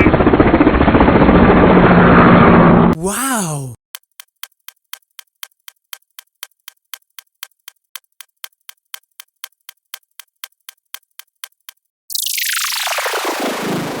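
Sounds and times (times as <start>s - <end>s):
sharp steady ticking: 3.9s - 11.9s.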